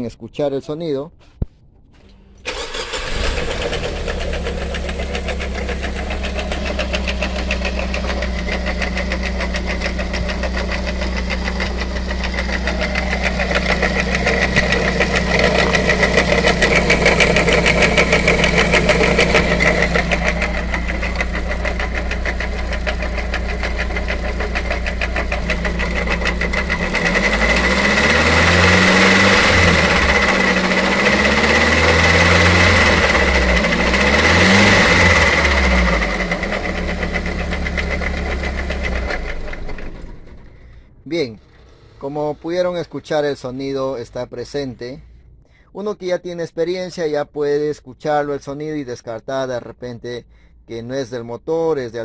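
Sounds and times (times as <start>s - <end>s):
car engine idling and revving: 2.5s - 42.9s
high-pitched water pump whine: 2.9s - 39.5s.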